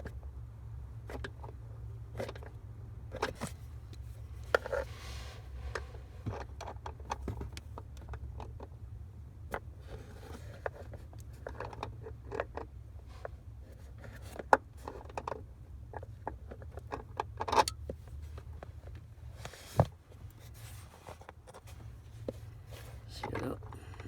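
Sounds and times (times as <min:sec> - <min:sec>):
steady low hum: 0:17.8 - 0:24.0.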